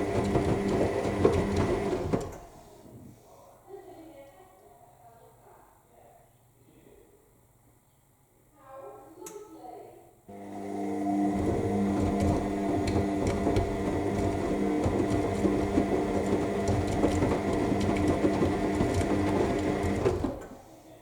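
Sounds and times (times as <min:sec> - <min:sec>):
washing machine motor hum: 0:00.0 - 0:02.8, 0:10.3 - 0:20.6.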